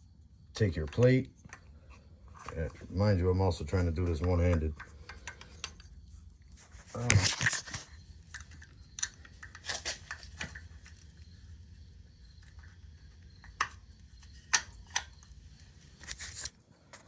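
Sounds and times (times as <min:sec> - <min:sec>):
metal parts clicking and tapping: 0:00.6 - 0:03.1, 0:03.7 - 0:11.2, 0:12.4 - 0:15.4.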